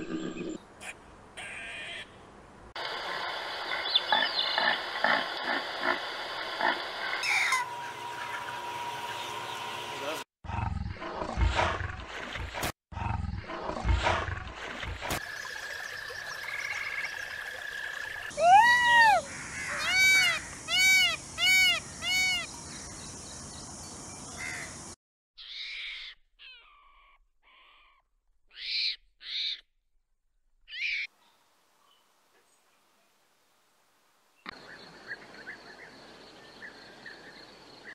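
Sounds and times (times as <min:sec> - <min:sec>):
peacock calling: 0:00.8 - 0:02.2, 0:07.2 - 0:09.7, 0:18.3 - 0:22.6
short high calls: 0:18.3 - 0:22.5.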